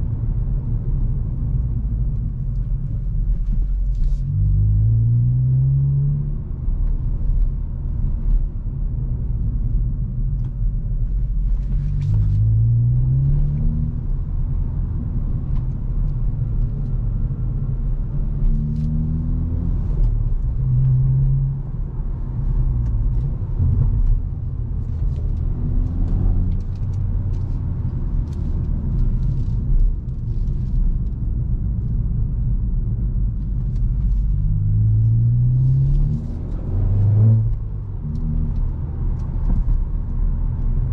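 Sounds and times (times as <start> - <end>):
car engine accelerating: 11.4 - 40.9.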